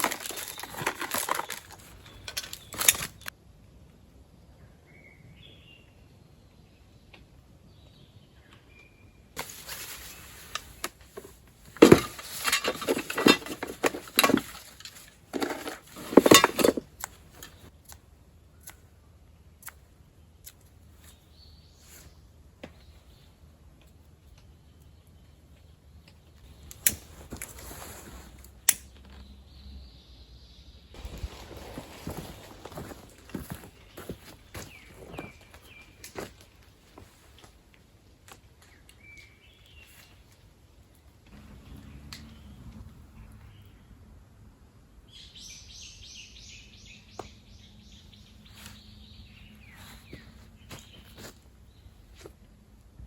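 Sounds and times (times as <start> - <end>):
light rustling of gear: 9.4 - 17.7, 31.0 - 37.6.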